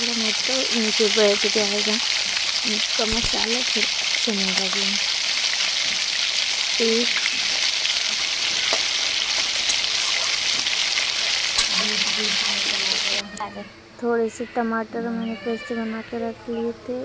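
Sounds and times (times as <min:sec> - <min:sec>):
paste sizzling in hot oil: 0:00.0 - 0:13.2.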